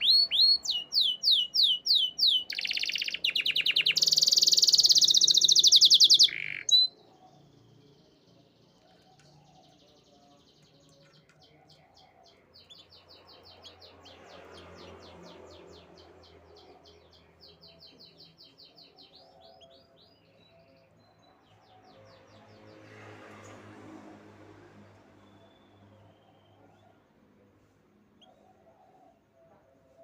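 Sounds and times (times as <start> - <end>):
canary singing trilled notes: 0.0 - 7.0.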